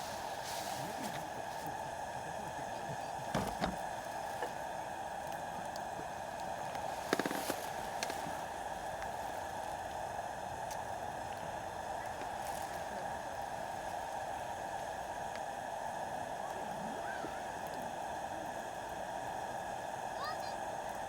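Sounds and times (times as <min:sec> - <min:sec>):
fire hissing: 0:00.0 - 0:21.0
wood fire crackling and popping: 0:03.2 - 0:15.5.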